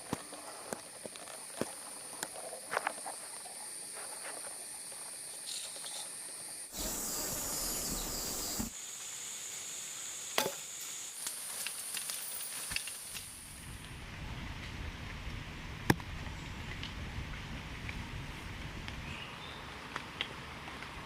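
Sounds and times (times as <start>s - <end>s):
high-pitched insect drone: 1.2s - 13.6s.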